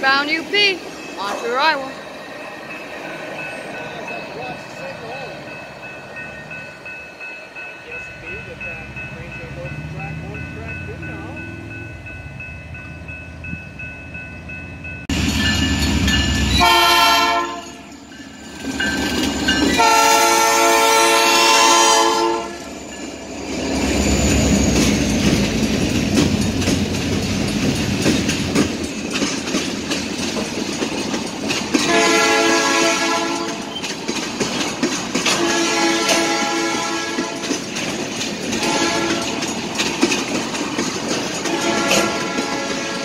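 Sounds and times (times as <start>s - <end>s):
train cars rumbling and clacking: 0.0s - 43.0s
locomotive air horn blasts: 16.6s - 17.8s, 19.8s - 22.7s, 31.8s - 33.6s, 35.3s - 37.4s, 38.6s - 39.4s, 41.5s - 43.0s.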